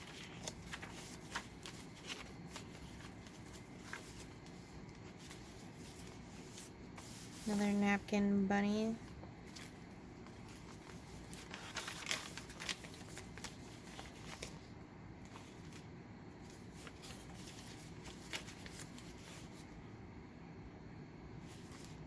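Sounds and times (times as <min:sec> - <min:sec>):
paper pages rustling and flicking: 0:00.0 - 0:07.6, 0:09.4 - 0:19.8, 0:21.4 - 0:22.0.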